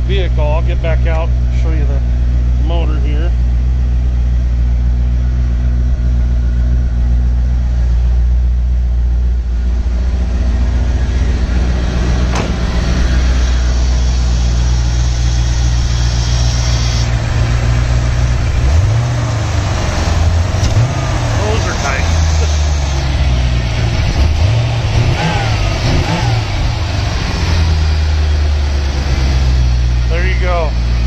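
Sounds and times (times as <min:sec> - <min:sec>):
car engine idling: 0:00.0 - 0:31.0
sharp knock: 0:12.2 - 0:13.0.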